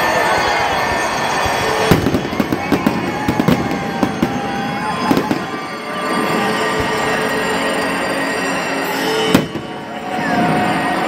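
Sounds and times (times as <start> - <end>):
firework bang: 9.3 - 9.9.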